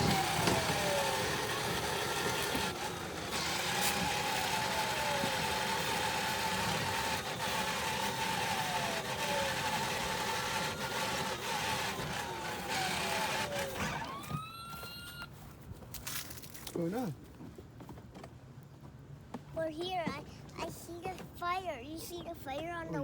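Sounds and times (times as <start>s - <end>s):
toy vehicle driving noise: 0.0s - 15.3s
toy electronic siren wailing: 10.4s - 15.3s.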